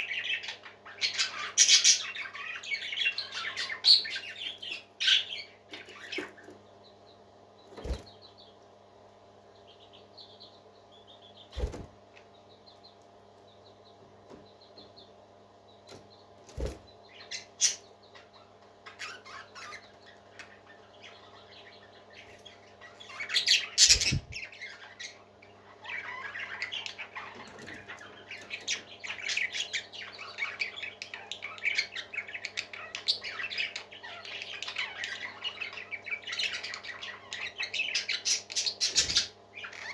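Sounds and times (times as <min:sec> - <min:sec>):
parakeets chirping: 0:00.0 - 0:08.6, 0:09.4 - 0:39.9.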